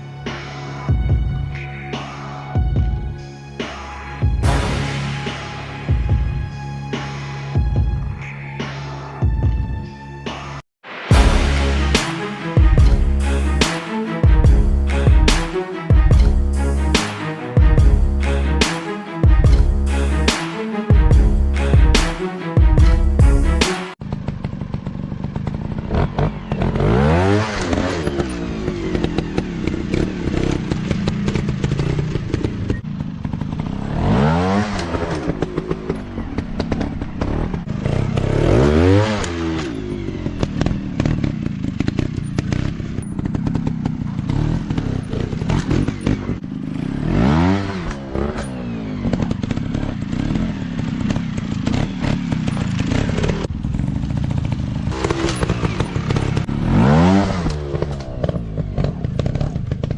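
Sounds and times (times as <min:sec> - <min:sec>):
dirt bike engines revving: 0:23.2 - 0:59.9.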